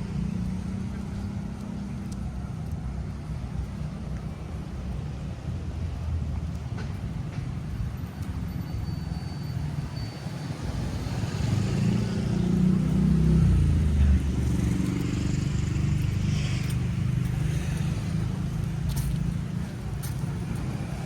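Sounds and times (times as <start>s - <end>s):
traffic drone: 0.0s - 21.0s
vehicle engine passing close: 10.6s - 21.0s.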